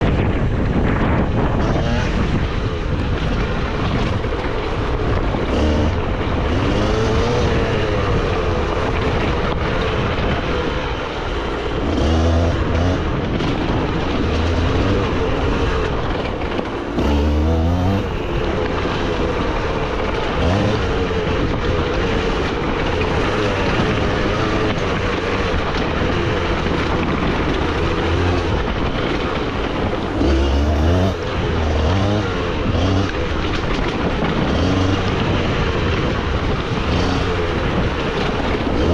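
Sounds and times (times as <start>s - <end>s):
two-stroke motorbike engine revving: 0.0s - 38.9s.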